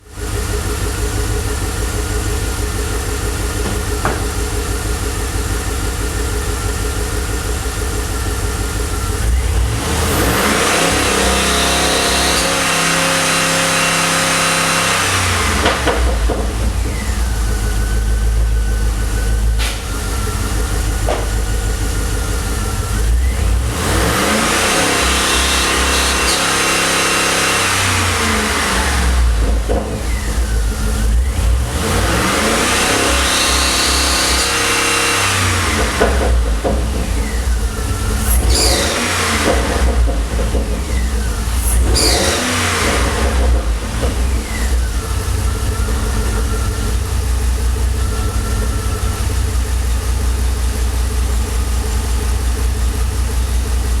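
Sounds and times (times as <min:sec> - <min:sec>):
car engine idling and revving: 0:00.0 - 0:54.0
intermittent engine squeak: 0:16.7 - 0:51.1.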